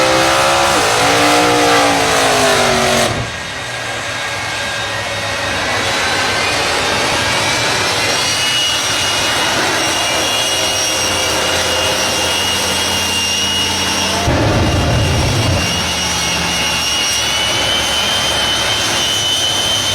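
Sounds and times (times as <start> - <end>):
jet engines rushing and whining: 0.0 - 19.9
loud low rumble: 14.2 - 17.0.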